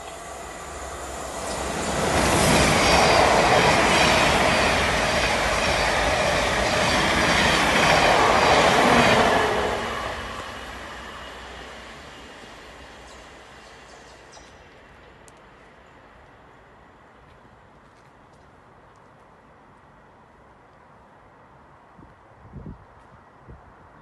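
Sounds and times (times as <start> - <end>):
train passing at speed: 0.0 - 17.7.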